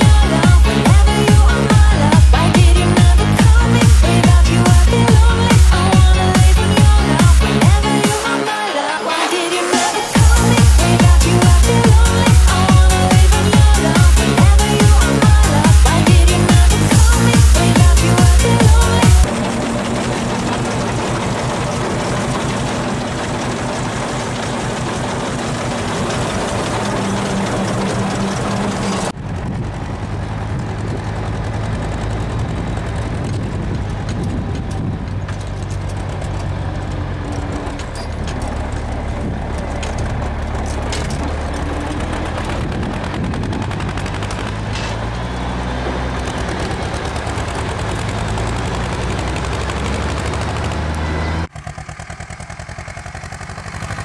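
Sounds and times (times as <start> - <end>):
background music: 0.0 - 19.5
diesel tractor engine putter: 0.0 - 54.0.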